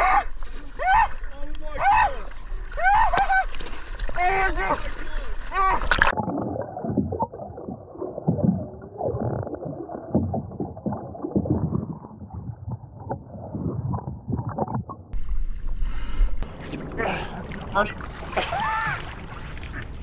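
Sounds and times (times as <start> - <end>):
muffled underwater water noise: 0.0 - 20.0
water splashing: 0.0 - 20.0
low underwater thumps: 5.9 - 19.7.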